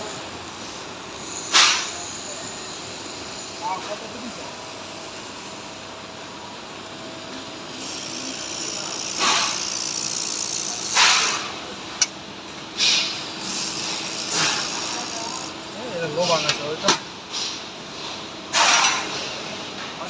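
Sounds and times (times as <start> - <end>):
welding machine hum and hiss: 0.0 - 20.0
short hissing bursts: 1.2 - 5.9, 7.8 - 11.5, 12.8 - 16.4.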